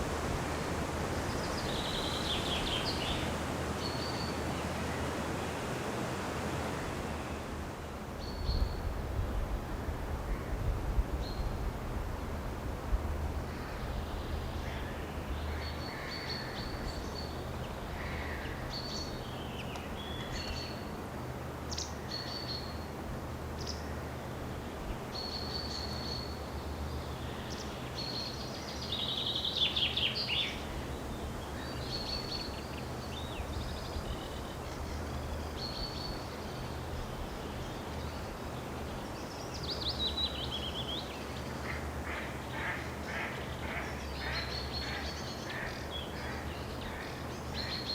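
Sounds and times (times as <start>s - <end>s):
wild birds calling: 13.5s - 20.8s, 27.0s - 47.9s.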